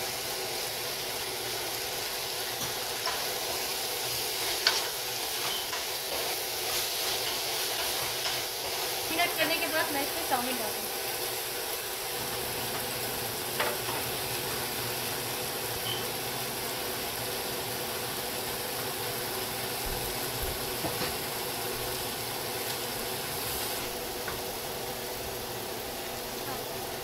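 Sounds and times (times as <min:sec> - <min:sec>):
noodles sizzling in a wok: 0:00.0 - 0:27.0.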